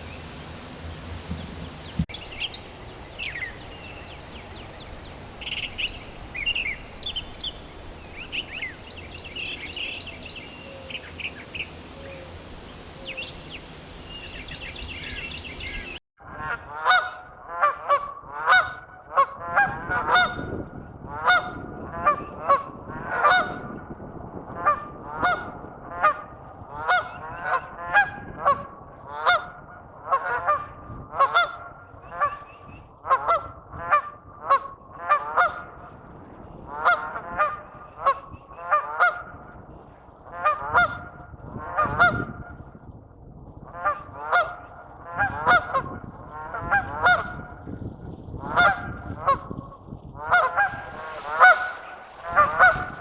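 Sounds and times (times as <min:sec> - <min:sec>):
geese honking: 0:00.0 - 0:18.7, 0:36.8 - 0:39.3, 0:40.4 - 0:41.1, 0:43.8 - 0:47.5, 0:48.5 - 0:49.5, 0:50.2 - 0:53.0.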